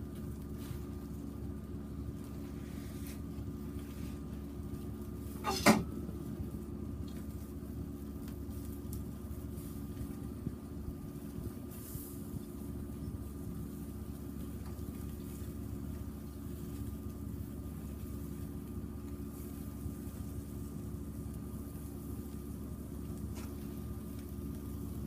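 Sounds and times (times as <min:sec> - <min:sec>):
steady low hum: 0:00.0 - 0:25.0
sharp knock with rattle: 0:05.4 - 0:05.9.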